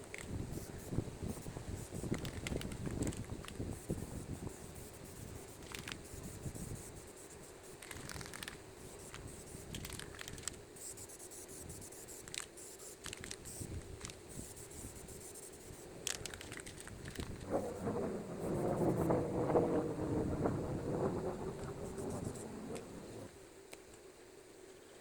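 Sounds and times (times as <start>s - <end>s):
faint scraping and rustling: 0.0s - 19.1s.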